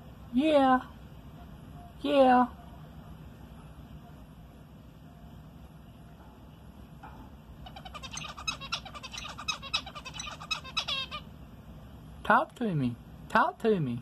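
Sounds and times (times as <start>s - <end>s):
finch singing: 7.6s - 11.3s.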